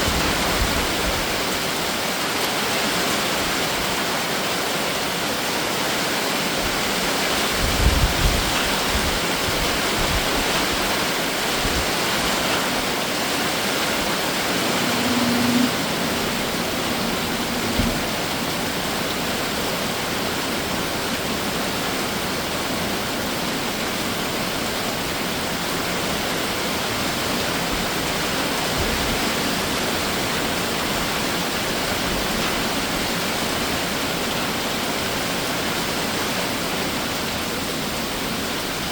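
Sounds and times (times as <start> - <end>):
heavy rain falling: 0.0 - 38.9
low hum: 12.2 - 20.2
low thumps: 13.9 - 19.1.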